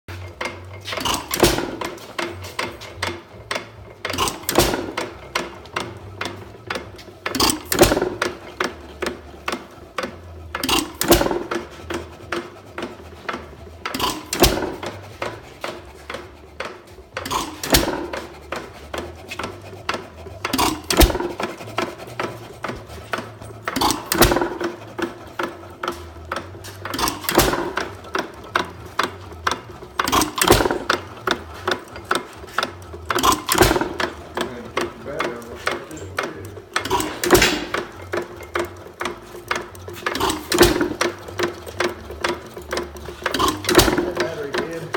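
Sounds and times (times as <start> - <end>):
valve gear clicking: 0.1 - 44.9
engine firing with loud bang: 32.0 - 34.9, 36.8 - 38.7.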